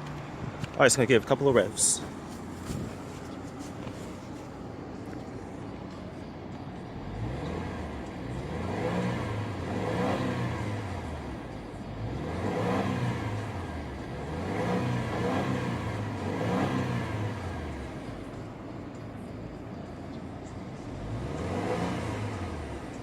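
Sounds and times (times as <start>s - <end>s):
car engine revving: 6.8s - 19.8s, 20.7s - 23.0s.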